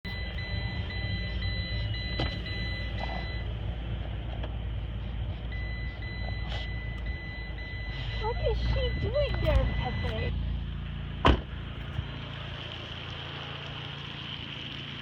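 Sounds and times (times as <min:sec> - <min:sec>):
car warning chime beeping: 0:00.0 - 0:03.7, 0:05.3 - 0:10.4
idling engine rumble: 0:00.0 - 0:15.0.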